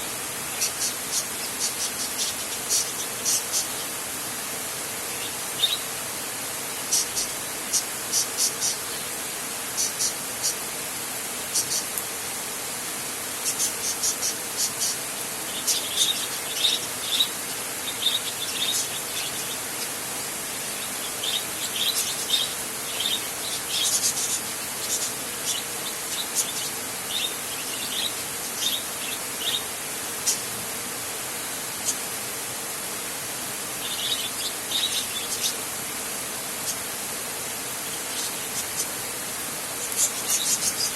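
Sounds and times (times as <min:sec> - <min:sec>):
steady rain hiss: 0:00.0 - 0:40.9
birds chirping: 0:00.4 - 0:04.0, 0:04.9 - 0:06.0, 0:06.7 - 0:10.7, 0:11.5 - 0:12.0, 0:13.4 - 0:30.6, 0:33.7 - 0:35.8, 0:37.8 - 0:39.2, 0:39.8 - 0:40.9.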